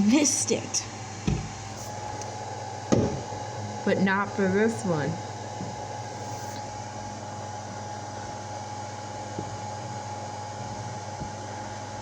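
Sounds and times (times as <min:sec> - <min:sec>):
steady mechanical hum: 0:00.0 - 0:12.0
soft knock: 0:01.2 - 0:01.6.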